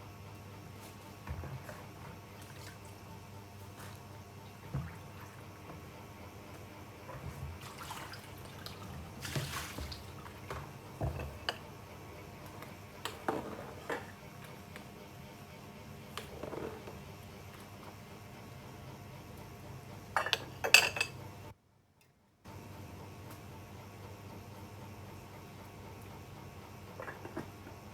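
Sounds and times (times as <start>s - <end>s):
cookware and utensils clinking: 20.2s - 21.2s.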